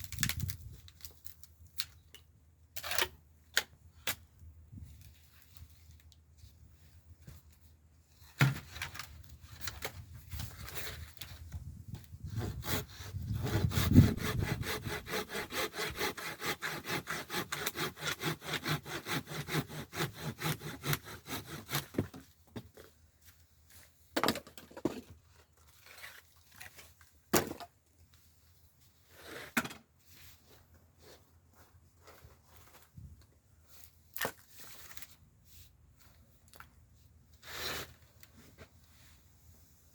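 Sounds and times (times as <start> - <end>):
hand saw cutting wood: 12.2 - 22.3.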